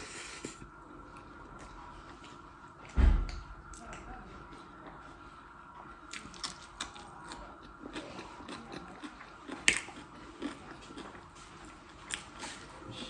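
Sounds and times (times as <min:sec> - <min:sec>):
faint steady hum: 0:00.0 - 0:13.0
person chewing food: 0:03.7 - 0:13.0
food crunching: 0:03.8 - 0:13.0.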